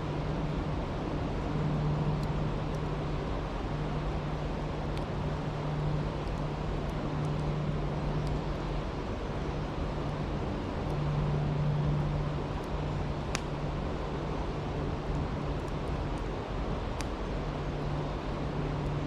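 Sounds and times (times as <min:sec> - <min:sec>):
campfire crackling and popping: 0:00.2 - 0:19.0.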